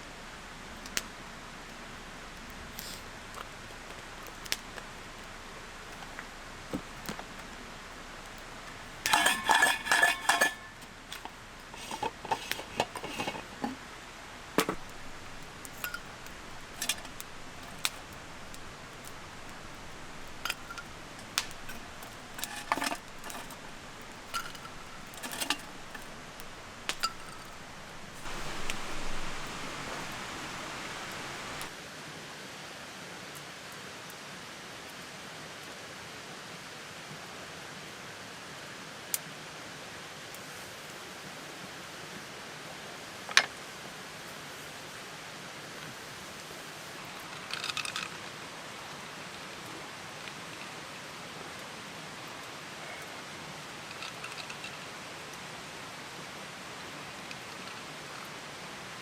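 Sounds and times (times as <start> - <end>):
steady hiss: 0.0 - 31.8
metal cookware clinking: 8.7 - 31.7.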